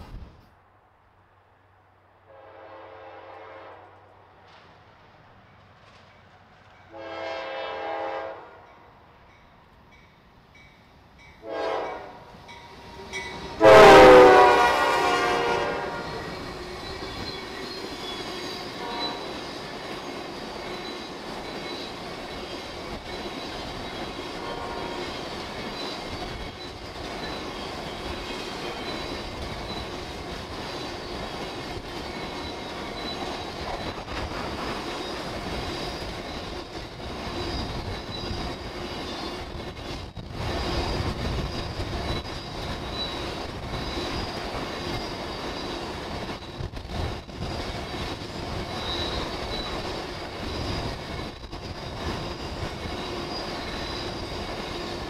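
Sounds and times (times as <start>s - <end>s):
locomotive air horn blasts: 2.3s - 4.0s, 6.9s - 8.7s, 11.4s - 12.3s, 13.5s - 16.3s, 18.8s - 19.3s, 24.4s - 25.0s
train cars rumbling and clacking: 4.0s - 55.0s
faint wheel squeal: 30.8s - 46.7s, 47.4s - 55.0s.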